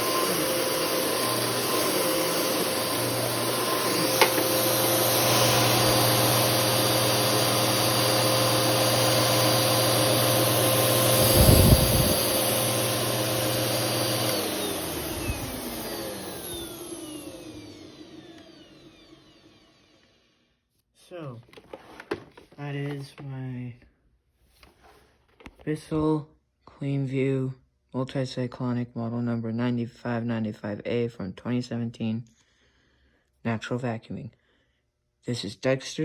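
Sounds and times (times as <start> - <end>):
motor winding down whine: 0.0 - 20.4
vacuum cleaner running: 0.0 - 20.4.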